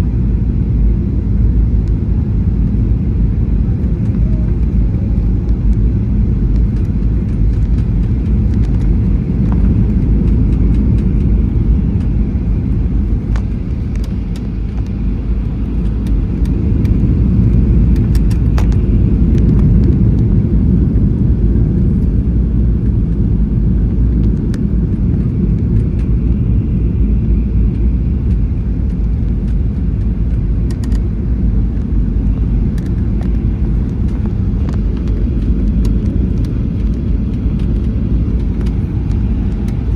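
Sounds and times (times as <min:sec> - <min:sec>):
airliner engine rumble in cabin: 0:00.0 - 0:39.9
light rattles and clicks: 0:02.6 - 0:20.4, 0:27.7 - 0:39.9.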